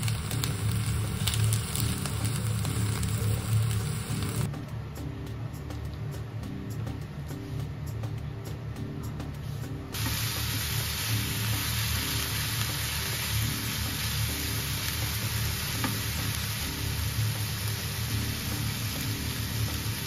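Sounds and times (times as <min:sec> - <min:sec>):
meat sizzling in a frying pan: 0:00.0 - 0:04.5, 0:10.0 - 0:20.0
background music: 0:00.0 - 0:20.0.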